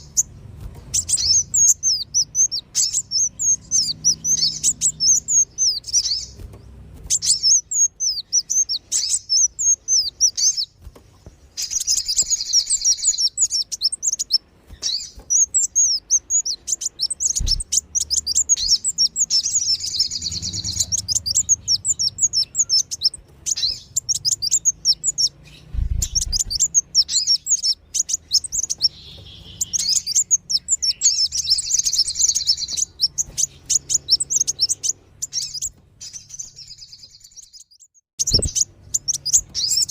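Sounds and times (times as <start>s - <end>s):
high bird chirps: 0.0s - 10.8s, 11.4s - 39.9s
low thumps: 25.7s - 26.6s.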